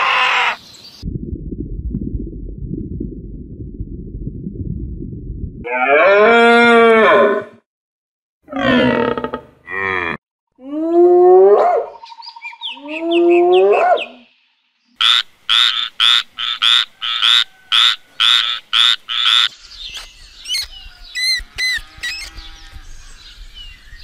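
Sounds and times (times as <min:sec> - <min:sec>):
long rising animal calls: 0:05.6 - 0:07.6, 0:08.5 - 0:11.5
frog croaking: 0:15.0 - 0:19.5.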